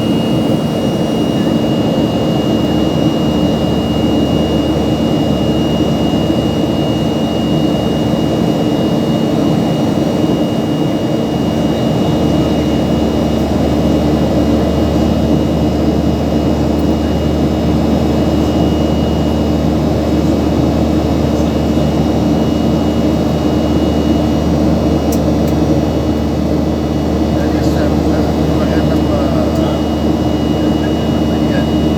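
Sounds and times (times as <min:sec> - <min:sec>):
engine drone: 0:10.2 - 0:31.9
humming tones: 0:11.7 - 0:31.9
thin high whine: 0:27.2 - 0:31.9.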